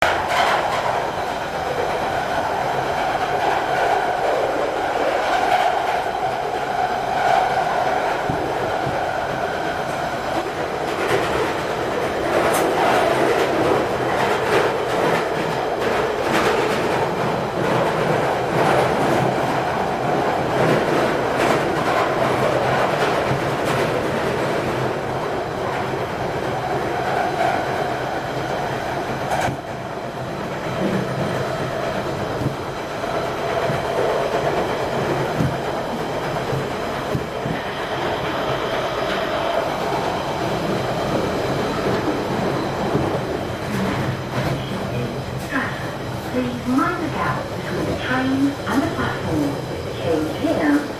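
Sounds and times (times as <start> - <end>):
train rumbling through tunnel: 0.0 - 50.9
rail joint clicks: 5.2 - 19.5, 29.2 - 29.9.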